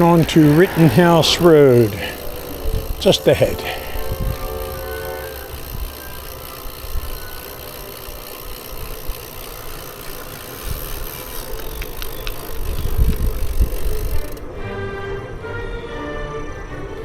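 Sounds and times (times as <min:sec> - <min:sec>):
wind rumbling on microphone: 0:00.0 - 0:06.0, 0:10.5 - 0:14.6
road noise: 0:00.0 - 0:17.0.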